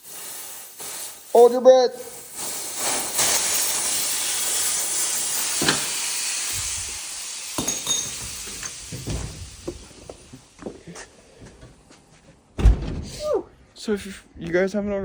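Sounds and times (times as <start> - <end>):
sharp metallic clinks: 0.0 - 6.6, 7.3 - 8.9
pressurised gas hissing: 0.0 - 11.9.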